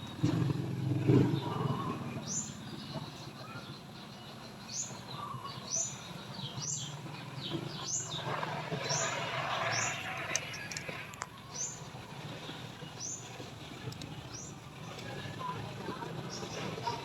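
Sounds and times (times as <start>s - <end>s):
bird chirping: 0.0s - 13.4s.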